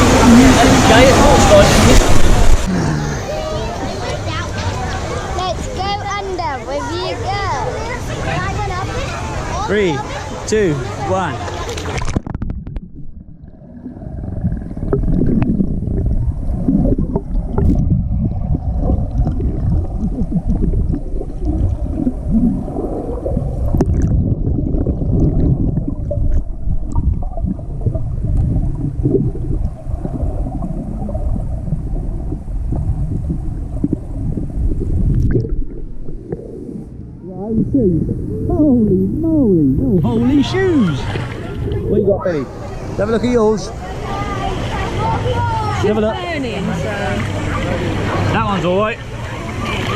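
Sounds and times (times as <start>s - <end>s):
muffled underwater gurgling: 12.1s - 42.6s.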